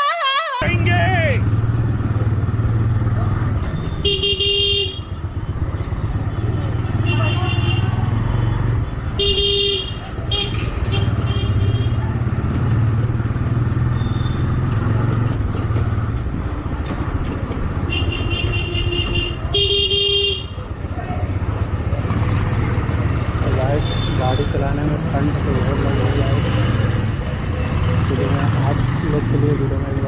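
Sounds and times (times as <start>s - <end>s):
motorcycle engine running: 0.6s - 8.8s
vehicle horn honking: 3.9s - 5.2s, 9.2s - 12.0s, 17.9s - 20.5s.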